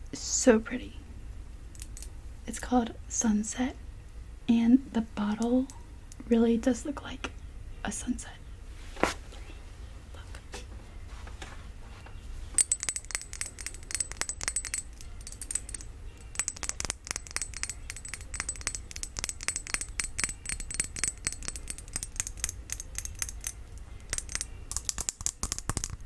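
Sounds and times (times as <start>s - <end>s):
tapping on glass bottle: 12.6s - 26.0s.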